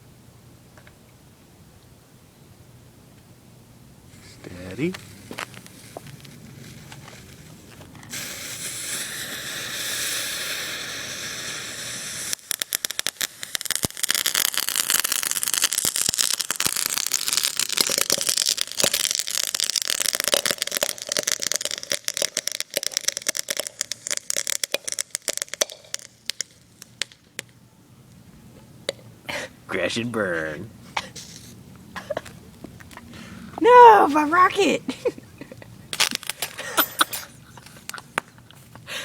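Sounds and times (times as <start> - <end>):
firework crackling: 4.0 - 27.6, 29.6 - 39.0
firework hissing: 4.1 - 27.0, 29.7 - 32.3, 35.8 - 38.2.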